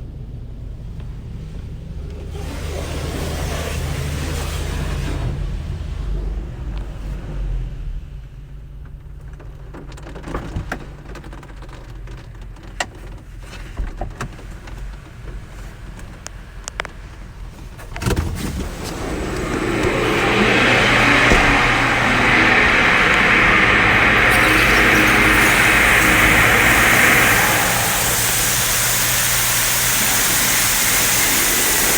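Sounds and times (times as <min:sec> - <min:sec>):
car wash machinery hum: 0:00.0 - 0:07.5, 0:13.2 - 0:31.9
loud hiss: 0:18.5 - 0:31.9
thump: 0:18.9 - 0:25.2.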